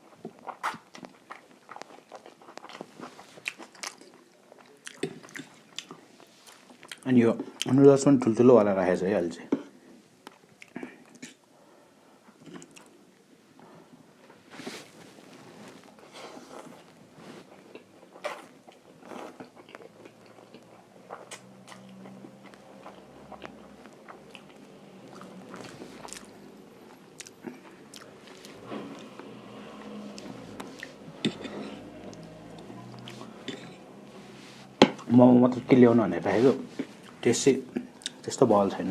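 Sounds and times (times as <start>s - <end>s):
person chewing noodles: 0.0s - 7.0s, 12.3s - 13.0s, 15.8s - 35.1s, 36.8s - 38.3s.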